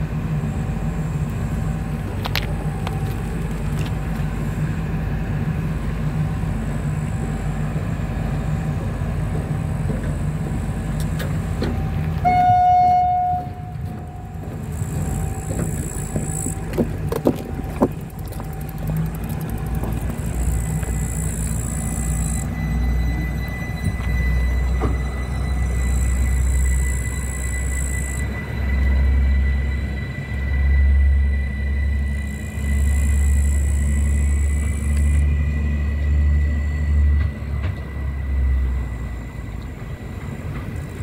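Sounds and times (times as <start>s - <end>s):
train engine rumbling: 0.0s - 41.0s
train horn toot: 11.6s - 16.7s, 22.0s - 39.6s.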